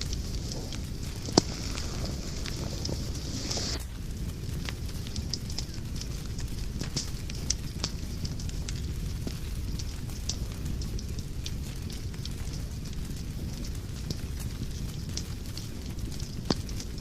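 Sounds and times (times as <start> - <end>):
low rumble of flames: 0.0 - 17.0
wood fire crackling and popping: 0.0 - 17.0
brief hiss: 1.3 - 3.8.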